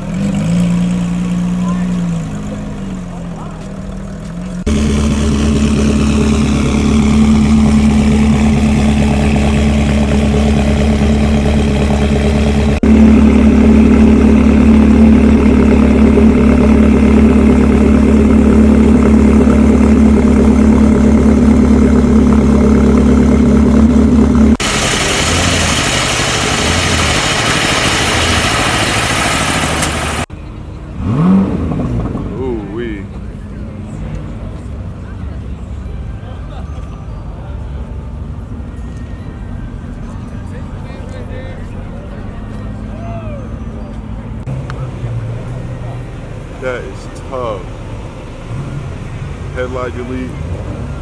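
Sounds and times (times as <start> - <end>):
car engine idling: 0.8 - 35.9, 44.0 - 51.0.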